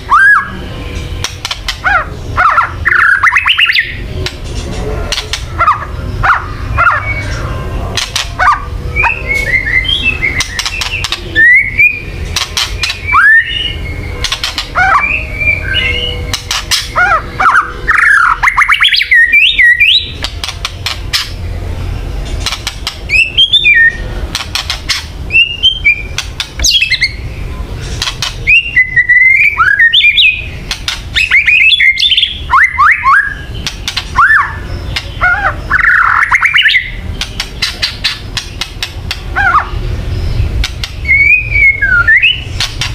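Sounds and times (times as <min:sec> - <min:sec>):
bird whistled notes: 0:08.4 - 0:20.3, 0:23.1 - 0:24.0, 0:28.4 - 0:30.6, 0:31.2 - 0:33.5, 0:34.1 - 0:37.0, 0:41.0 - 0:42.5
bird rattling calls: 0:14.2 - 0:15.0, 0:24.3 - 0:25.2, 0:27.8 - 0:28.6, 0:33.6 - 0:39.8.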